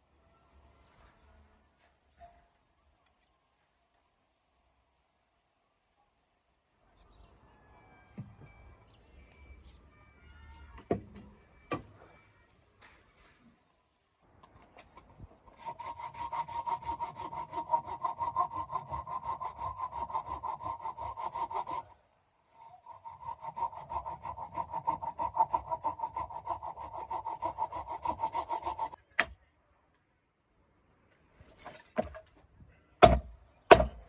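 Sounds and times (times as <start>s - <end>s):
hand saw cutting wood: 15.5s - 29.0s.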